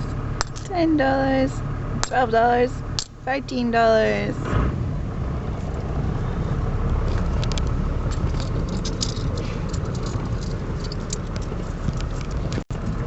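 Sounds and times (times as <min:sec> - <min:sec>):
car engine idling: 0:00.0 - 0:13.0
coins clinking and jingling: 0:08.2 - 0:11.3.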